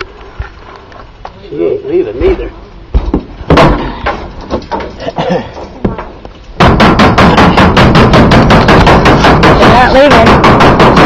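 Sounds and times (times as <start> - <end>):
weak bumps: 2.2 - 11.0
sharp knock: 3.0 - 3.9, 6.6 - 11.0
loud rapid rattle: 6.6 - 11.0.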